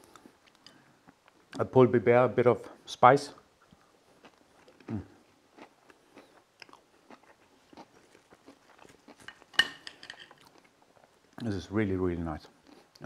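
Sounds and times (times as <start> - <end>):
person chewing crispy chicken: 3.6 - 9.5, 10.3 - 11.5, 12.5 - 13.0.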